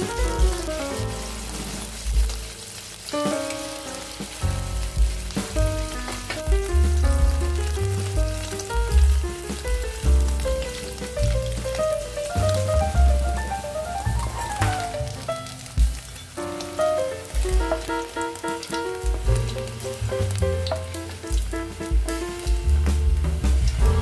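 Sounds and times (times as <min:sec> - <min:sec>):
food sizzling in oil: 0:00.0 - 0:24.0
background music: 0:16.4 - 0:24.0.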